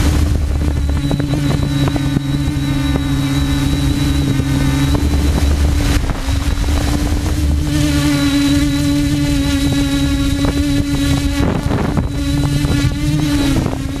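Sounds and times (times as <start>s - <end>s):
drone propellers buzzing: 0.0s - 14.0s.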